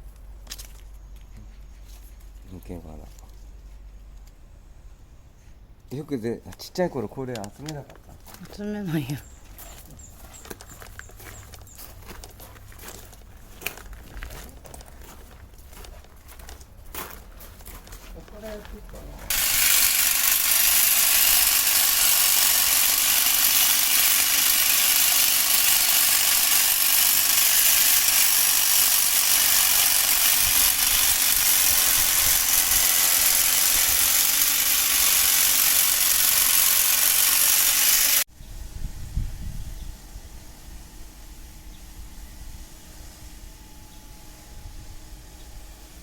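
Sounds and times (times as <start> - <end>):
brush cutter running: 19.3 - 38.3.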